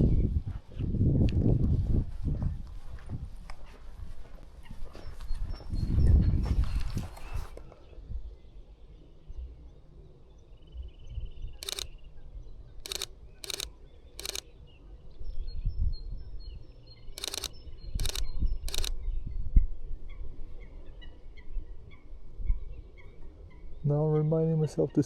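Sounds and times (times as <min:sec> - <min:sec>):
low wind rumble: 0:00.0 - 0:04.2
camera shutter clicking: 0:11.6 - 0:12.0, 0:12.8 - 0:14.5, 0:17.2 - 0:19.0.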